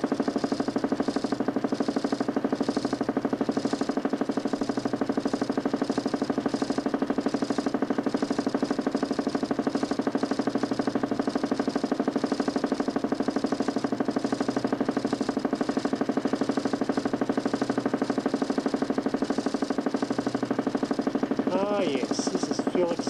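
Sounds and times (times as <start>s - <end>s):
motor spinning with throbbing pulse: 0.0s - 23.0s.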